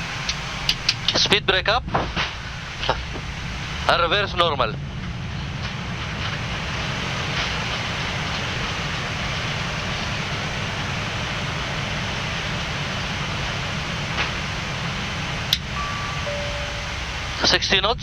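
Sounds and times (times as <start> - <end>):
faint clicks: 0.0 - 1.4
jet engines reverse thrust roar: 0.0 - 18.0.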